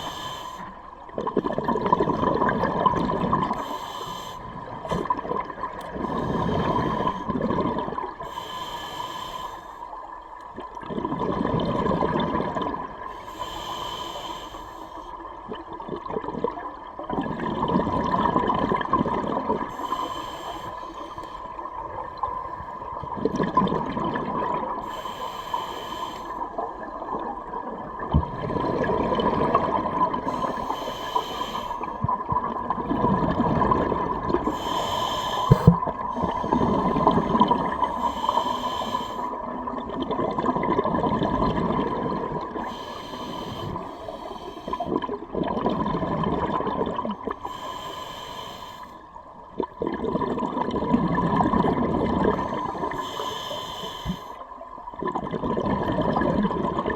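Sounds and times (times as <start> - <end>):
diver breathing through regulator: 0.0 - 0.8, 3.4 - 5.1, 6.0 - 7.4, 8.2 - 9.9, 13.1 - 15.2, 19.6 - 21.7, 24.7 - 26.9, 29.8 - 32.1, 34.4 - 39.6, 42.4 - 45.1, 47.3 - 49.2, 52.3 - 54.5
faint steady hum: 0.0 - 56.9
bubbling exhalations: 1.1 - 3.7, 44.8 - 47.4, 49.5 - 53.0, 54.9 - 56.9.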